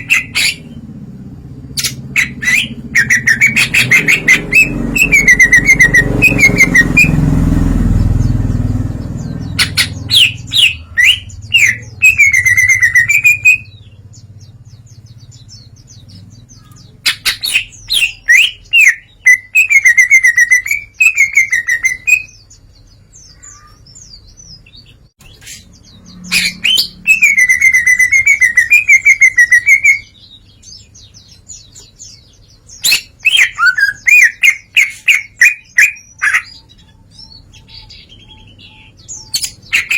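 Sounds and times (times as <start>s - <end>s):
low rumble: 0.0s - 17.0s
bird singing: 0.0s - 39.9s.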